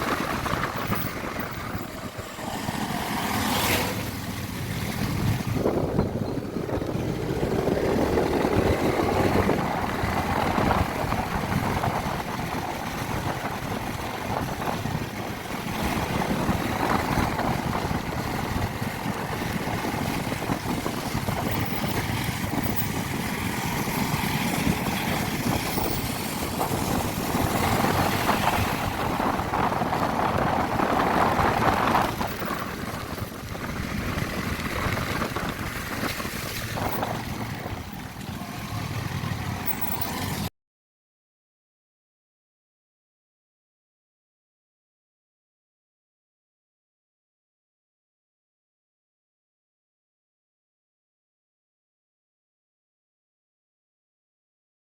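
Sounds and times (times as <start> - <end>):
motorcycle engine running: 0.0 - 40.5
wind rushing over microphone: 0.0 - 40.5.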